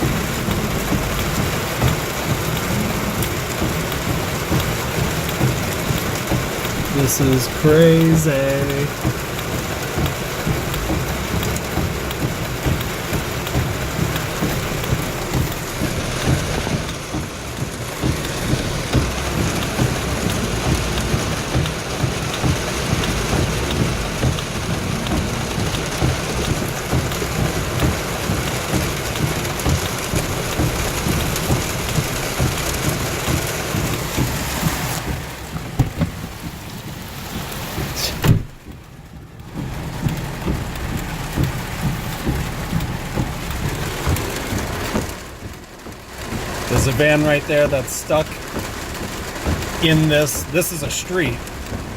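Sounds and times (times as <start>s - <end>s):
thunder rumbling: 0.0s - 7.6s
heavy rain pouring: 0.0s - 51.9s.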